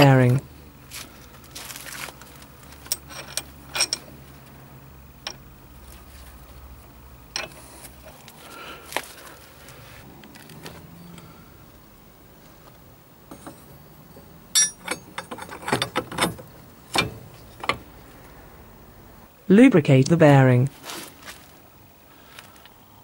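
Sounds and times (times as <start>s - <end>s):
steel tool parts clinking: 2.8s - 4.1s, 7.3s - 7.7s, 13.3s - 17.8s.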